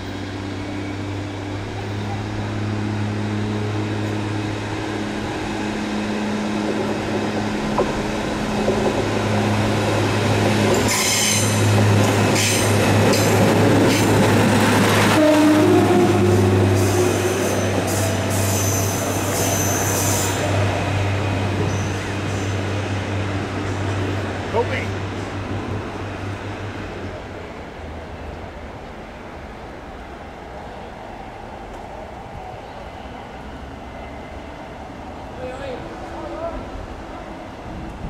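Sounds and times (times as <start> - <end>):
diesel train engine drone: 0.0 - 38.0
high-pitched wheel squeal: 10.9 - 11.6, 15.2 - 20.5.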